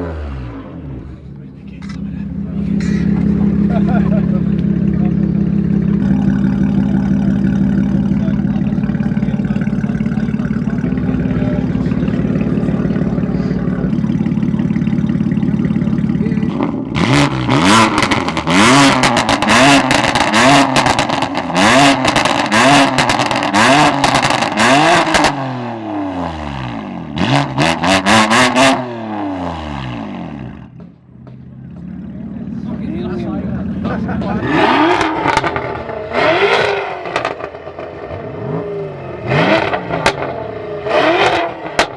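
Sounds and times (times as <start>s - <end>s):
car engine revving: 0.0s - 41.9s
exhaust pops and crackles: 1.7s - 25.4s, 33.7s - 38.3s, 39.6s - 40.4s, 41.2s - 41.9s.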